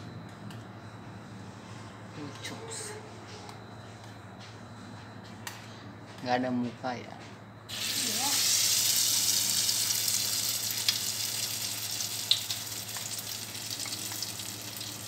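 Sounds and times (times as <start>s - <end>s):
hot oil sizzling in a wok: 7.7s - 15.0s.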